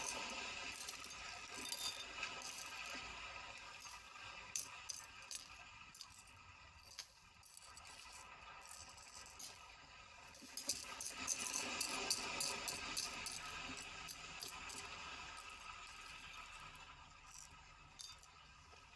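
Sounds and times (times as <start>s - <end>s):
small hard objects clinking: 0.0s - 9.7s, 10.3s - 18.4s.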